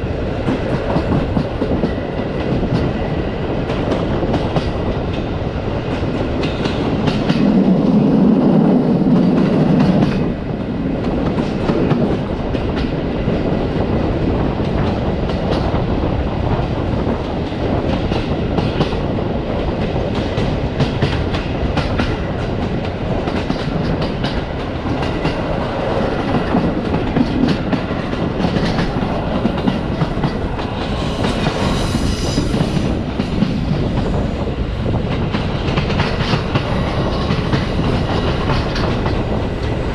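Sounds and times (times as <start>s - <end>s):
train rumble: 0.0s - 39.9s
train wheels clattering on rails: 0.0s - 39.9s
high hiss: 30.7s - 33.0s.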